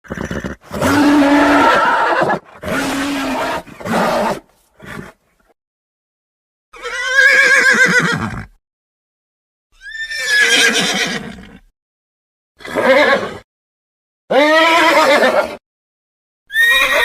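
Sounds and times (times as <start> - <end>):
horse calling: 0.0 - 5.2, 14.3 - 15.6, 16.5 - 17.0
horse whinnying: 0.0 - 5.2, 6.8 - 8.6, 9.8 - 11.7, 12.6 - 13.4, 14.3 - 15.6, 16.5 - 17.0.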